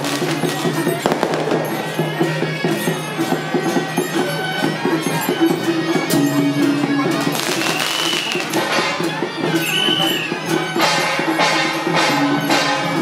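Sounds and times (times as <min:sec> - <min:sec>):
firecrackers crackling: 0:00.0 - 0:04.0, 0:07.1 - 0:13.0
festival music: 0:00.0 - 0:13.0
reedy wind instrument: 0:00.0 - 0:13.0.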